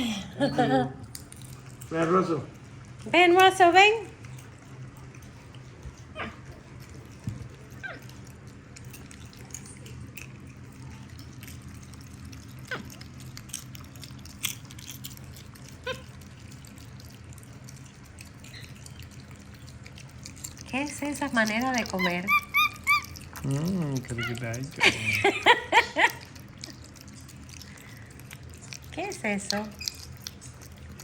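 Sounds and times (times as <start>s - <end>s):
monkeys crunching popcorn: 0.0s - 31.0s
steady low hum: 0.0s - 31.0s
monkey squeaky calls: 22.0s - 23.2s.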